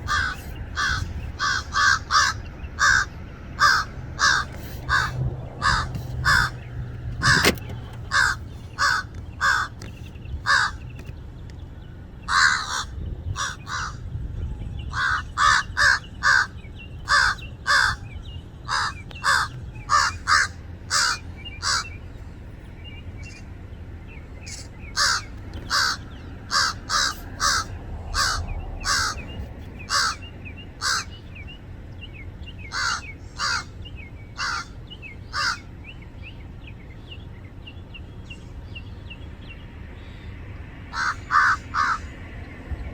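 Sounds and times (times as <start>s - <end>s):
crows cawing: 0.0s - 6.6s, 7.2s - 10.8s, 12.3s - 14.1s, 14.9s - 18.0s, 18.7s - 22.0s, 24.5s - 29.3s, 29.9s - 31.2s, 32.7s - 33.8s, 34.4s - 35.7s, 40.9s - 42.1s.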